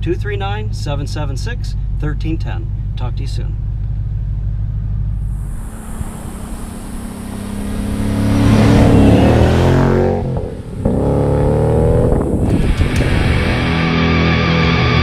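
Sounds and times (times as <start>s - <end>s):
car engine accelerating hard: 3.7s - 15.0s
heavy rock music: 12.6s - 15.0s.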